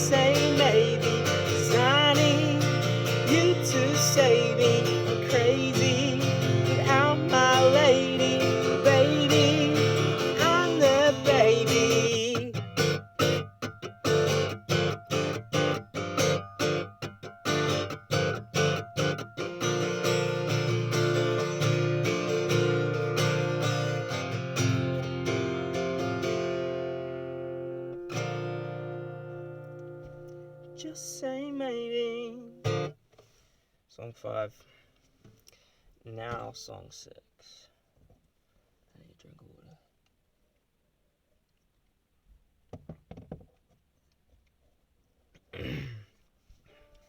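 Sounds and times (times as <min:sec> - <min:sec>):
person singing wordlessly: 0:00.0 - 0:12.9, 0:30.7 - 0:32.8
acoustic guitar strumming: 0:00.0 - 0:33.0.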